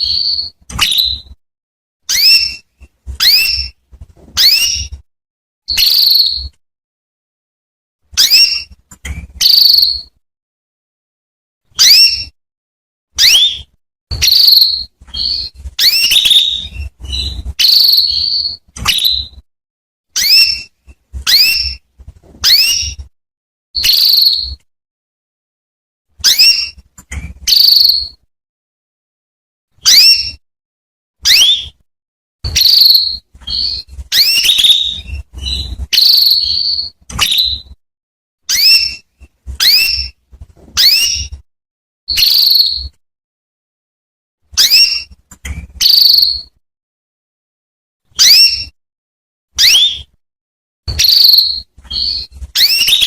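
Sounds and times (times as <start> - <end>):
canary calling: 0.0 - 1.3, 2.1 - 3.8, 4.4 - 4.9, 5.7 - 6.5, 8.2 - 8.7, 9.3 - 10.1, 11.8 - 12.4, 13.2 - 19.4, 20.2 - 21.8, 22.4 - 23.0, 26.2 - 26.8, 27.4 - 28.2, 29.8 - 30.4, 31.2 - 31.8, 32.5 - 37.7, 38.5 - 39.0, 39.6 - 40.2, 40.8 - 41.3, 44.6 - 45.1, 45.8 - 46.5, 48.2 - 48.7, 50.9 - 53.0.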